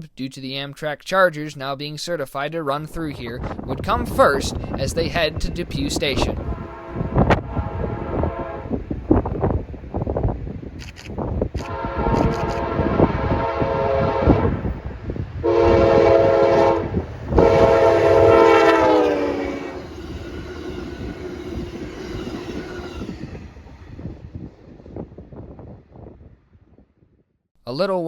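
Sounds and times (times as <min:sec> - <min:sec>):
diesel locomotive passing: 0:04.0 - 0:26.8
train air horn blasts: 0:06.4 - 0:08.9, 0:11.6 - 0:14.8, 0:15.4 - 0:23.2.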